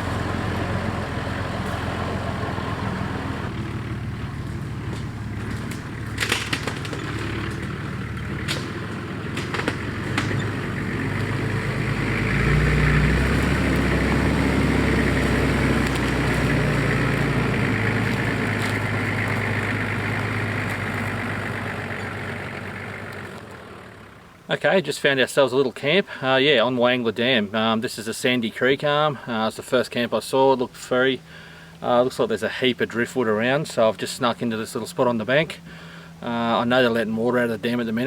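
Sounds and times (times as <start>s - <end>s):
car engine and road noise: 0.0s - 24.7s, 29.9s - 38.0s
sharp knocks or rattles: 4.7s - 10.8s.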